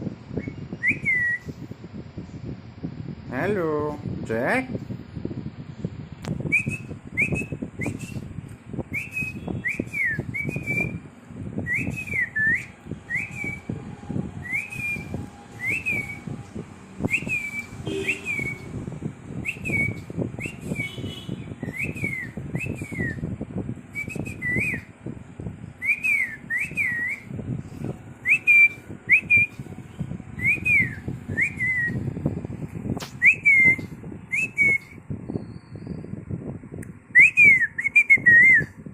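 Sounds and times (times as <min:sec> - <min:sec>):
low rumble of handling noise: 0:04.8 - 0:37.1
whistled swooping notes: 0:08.9 - 0:21.0, 0:21.6 - 0:23.3, 0:25.8 - 0:32.1, 0:33.0 - 0:36.0.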